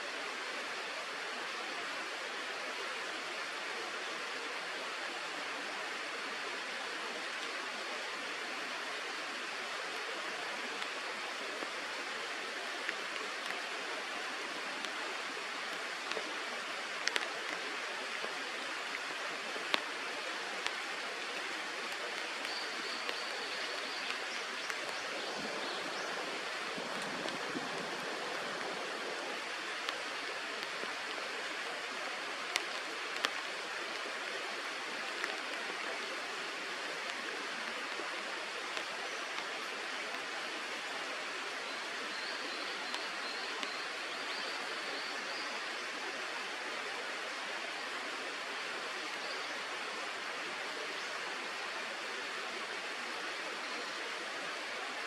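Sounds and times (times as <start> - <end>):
flowing river water: 0.0 - 55.0
faint ticks: 14.6 - 25.2, 29.8 - 34.1, 35.0 - 36.1.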